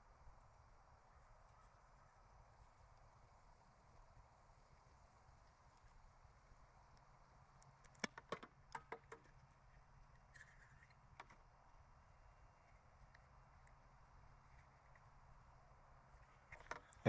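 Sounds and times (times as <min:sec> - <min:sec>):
plastic tubing clicks and taps: 0:07.9 - 0:09.4.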